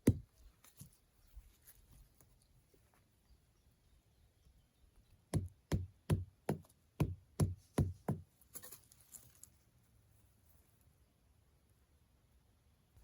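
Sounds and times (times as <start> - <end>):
faint rustling: 0.3 - 3.4, 8.3 - 11.1.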